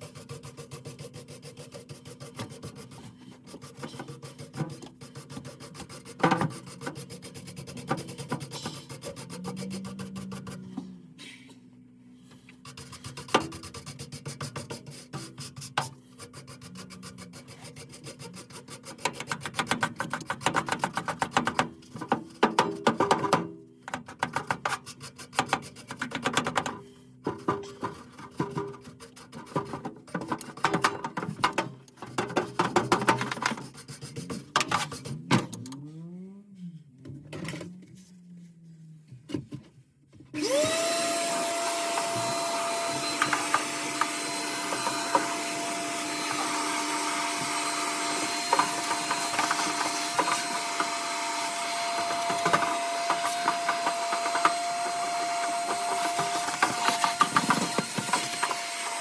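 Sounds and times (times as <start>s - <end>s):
parts clattering and knocking: 25.9s - 35.8s, 41.5s - 59.0s
vacuum cleaner running: 40.4s - 59.0s.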